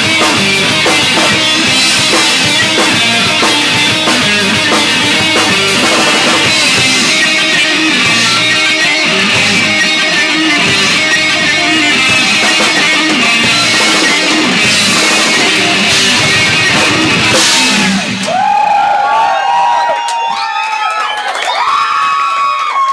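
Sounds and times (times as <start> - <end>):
live rock band playing: 0.0 - 18.5
crowd shouting and cheering: 0.0 - 22.9.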